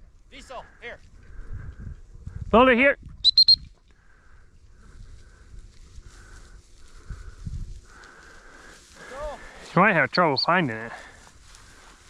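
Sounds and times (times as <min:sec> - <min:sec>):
footsteps through wet vegetation: 0:04.8 - 0:12.0.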